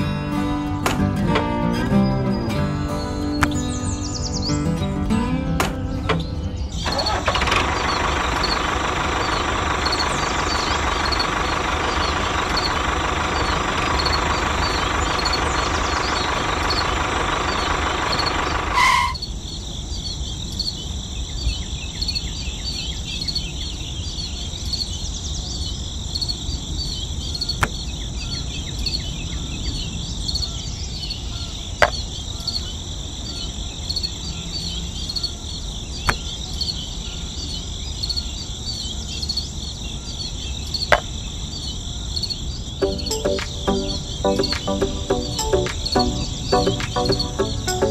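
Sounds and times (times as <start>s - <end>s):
crickets chirping: 6.6s - 42.8s.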